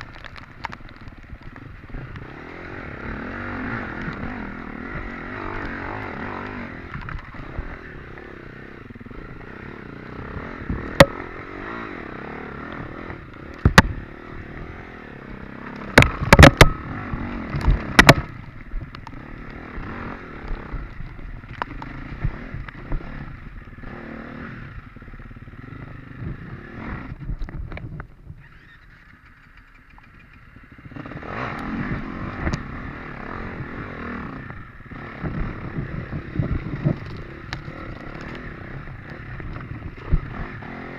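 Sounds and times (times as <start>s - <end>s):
dirt bike engine revving: 0.3s - 27.3s, 30.4s - 40.9s
sharp knocks and clatters: 16.0s - 16.9s.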